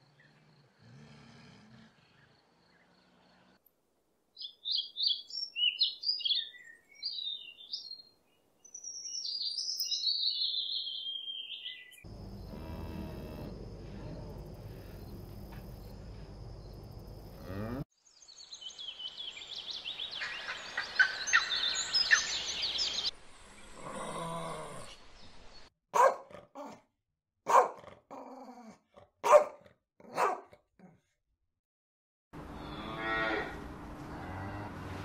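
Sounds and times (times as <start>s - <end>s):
high gliding chirping calls: 19.9s - 23.1s
dog barking: 25.9s - 26.8s, 27.5s - 28.0s, 29.2s - 30.6s.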